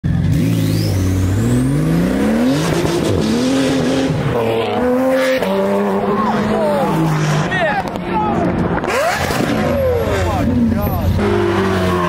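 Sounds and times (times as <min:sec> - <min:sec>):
car engine revving hard: 0:00.2 - 0:07.7, 0:08.6 - 0:12.0.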